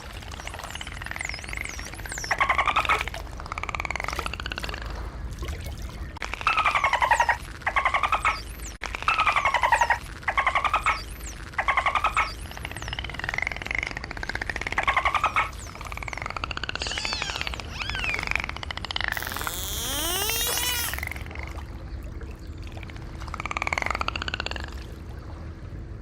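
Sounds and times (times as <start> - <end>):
dolphins pulsed squawks: 0.0 - 5.1, 6.1 - 21.4
faint high dolphin whistles: 16.8 - 18.4, 19.2 - 21.2.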